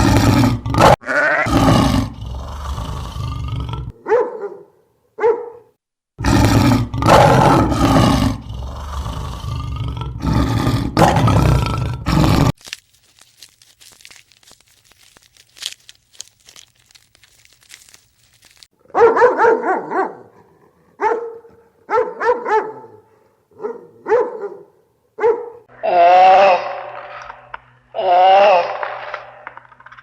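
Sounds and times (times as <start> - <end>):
dog barking: 4.0 - 5.7, 18.9 - 25.6.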